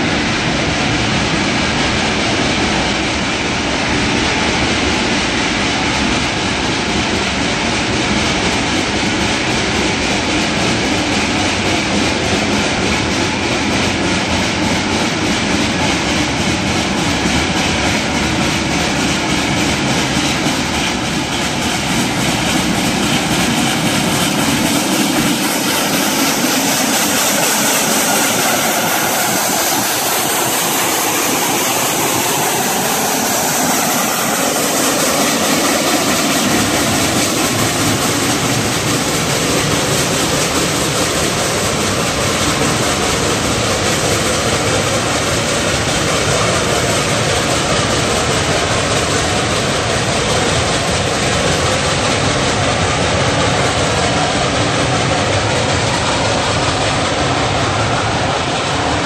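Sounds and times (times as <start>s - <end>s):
steam locomotive: 0.0s - 59.0s
train wheels clicking over rail joints: 0.0s - 59.0s.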